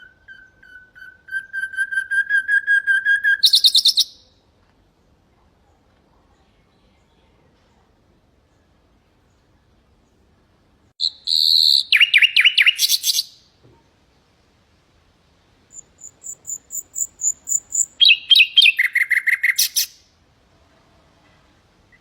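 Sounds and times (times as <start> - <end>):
nightingale singing: 0.0 - 4.4, 11.0 - 13.5, 15.7 - 20.1.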